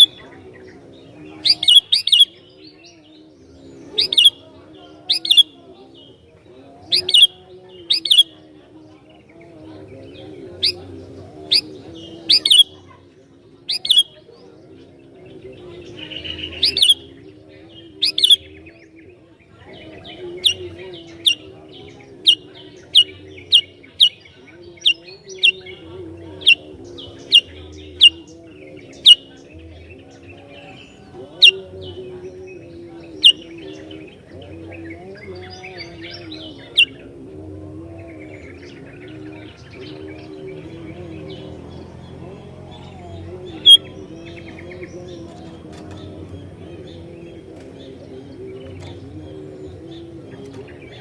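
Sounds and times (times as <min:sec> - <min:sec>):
bird chirping sharply: 0:01.5 - 0:02.5, 0:06.9 - 0:08.3, 0:11.5 - 0:12.8, 0:13.7 - 0:14.2, 0:16.0 - 0:17.1, 0:18.0 - 0:18.5.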